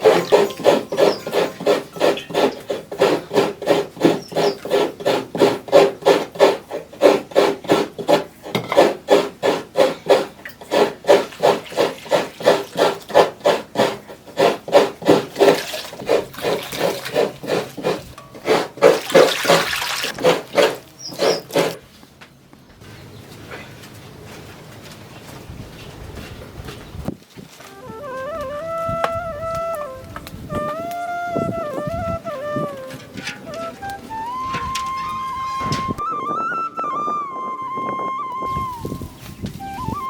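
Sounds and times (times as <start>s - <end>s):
coconut grating rasps: 0.0s - 21.8s, 32.5s - 36.0s.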